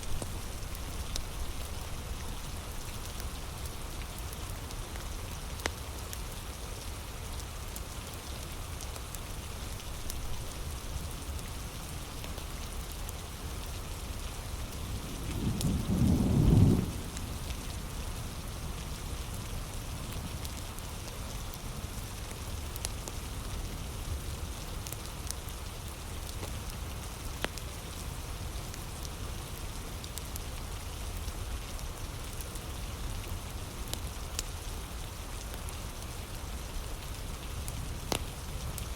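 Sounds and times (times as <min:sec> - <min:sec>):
heavy rain: 0:00.0 - 0:38.9
low rumble of thunder: 0:14.8 - 0:20.5.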